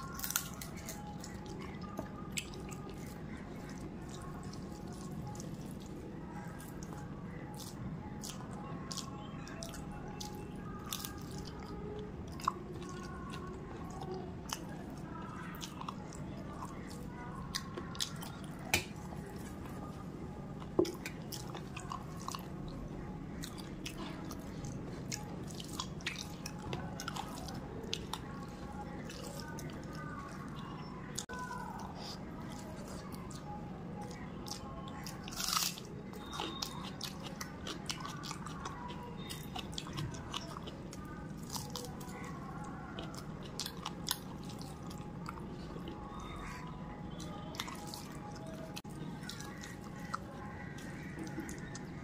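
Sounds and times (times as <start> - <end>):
wet chewing and lip smacking: 0.0 - 52.0.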